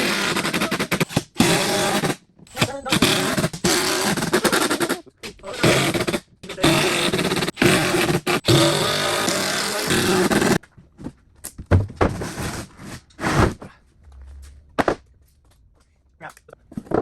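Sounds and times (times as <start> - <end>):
power tool running: 0.0 - 10.6
knocks and handling sounds: 10.2 - 12.3.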